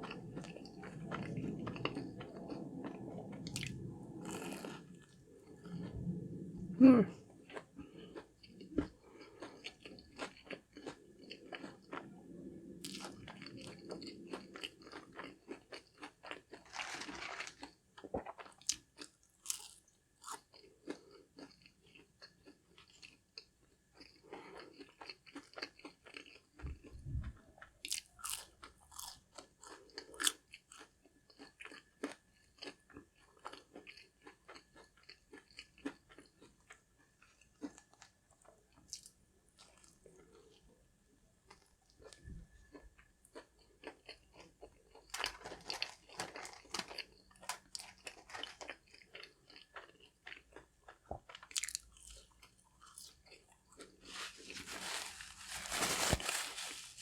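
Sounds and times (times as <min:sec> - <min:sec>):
chewing crispy fried food: 0:00.0 - 0:06.0, 0:07.0 - 0:57.0.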